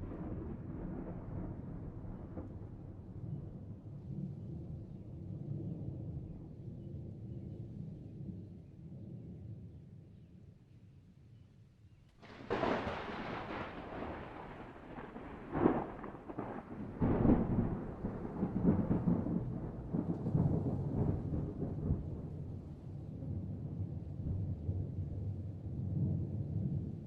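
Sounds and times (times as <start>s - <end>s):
sharp thunder cracks: 0.0s - 2.9s, 12.2s - 22.2s
rolling thunder rumble: 0.0s - 6.6s, 12.2s - 27.0s
thunder clap: 12.2s - 22.4s.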